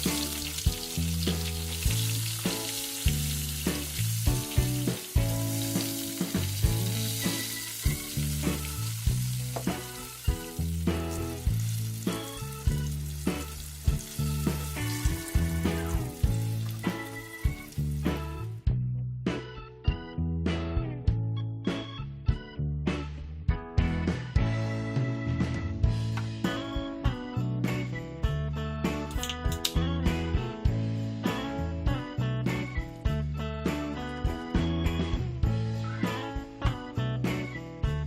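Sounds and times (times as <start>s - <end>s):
chicken frying with sizzle: 0.0s - 18.6s.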